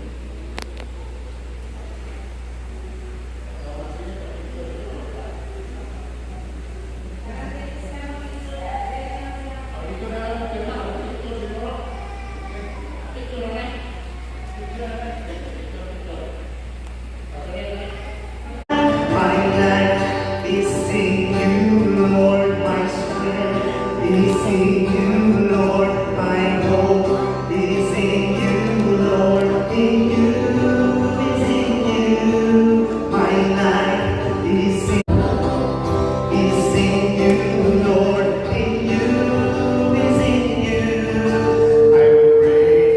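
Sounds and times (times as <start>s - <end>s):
choir singing: 21.4s - 42.9s.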